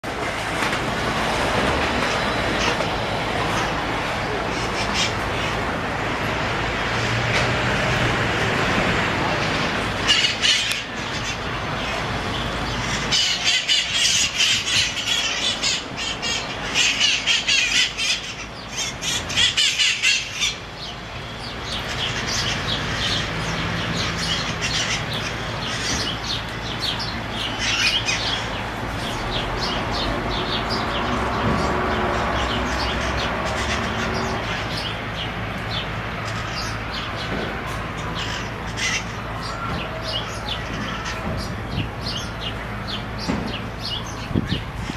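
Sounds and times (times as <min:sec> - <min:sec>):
parakeets squawking: 0:10.0 - 0:37.3, 0:37.9 - 0:44.9.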